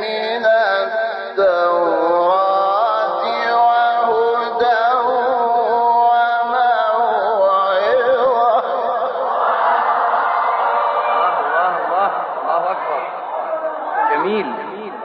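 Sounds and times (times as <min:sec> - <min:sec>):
man chanting melodically: 0:00.0 - 0:09.3, 0:14.0 - 0:15.0.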